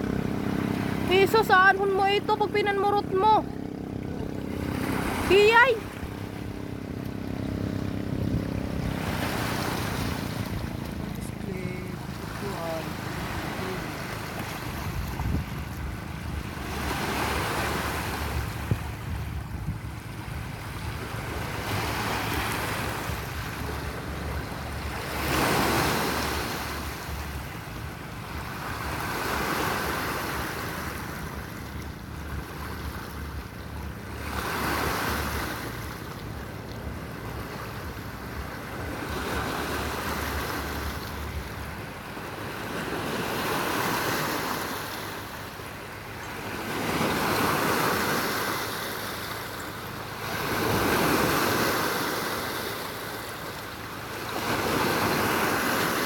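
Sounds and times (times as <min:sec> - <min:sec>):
wind rumbling on microphone: 0:00.0 - 0:25.2
sea waves breaking on shore: 0:00.0 - 0:56.0.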